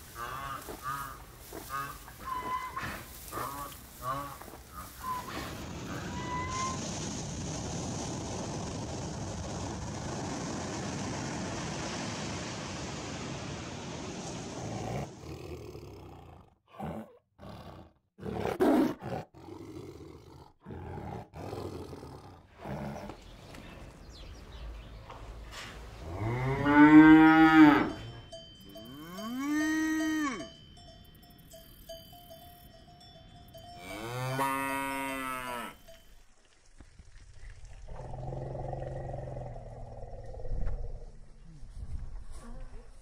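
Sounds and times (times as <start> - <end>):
tiger growling: 14.7 - 23.3
cow mooing: 26.0 - 28.1, 28.8 - 30.5, 33.8 - 35.9
cow bell clinking: 27.8 - 34.4, 35.7 - 36.3.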